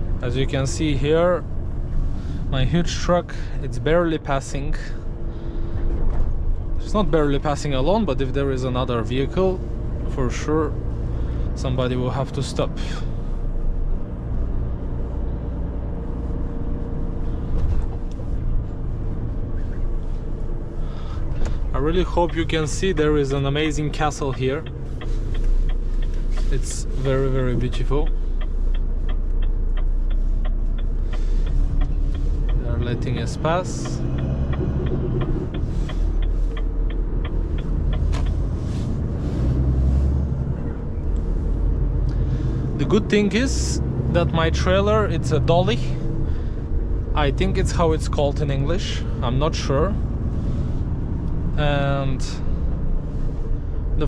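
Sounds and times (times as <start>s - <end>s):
diesel truck engine running: 0.0s - 54.0s
even ticking: 21.3s - 39.8s.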